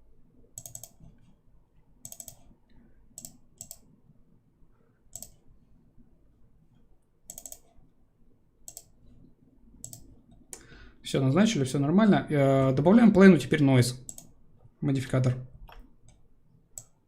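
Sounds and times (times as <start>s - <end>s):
computer mouse clicking: 0.6s - 1.4s, 2.0s - 3.9s, 5.1s - 5.5s, 6.7s - 7.8s, 8.6s - 9.2s, 9.8s - 10.7s, 14.0s - 14.4s, 16.8s - 17.0s.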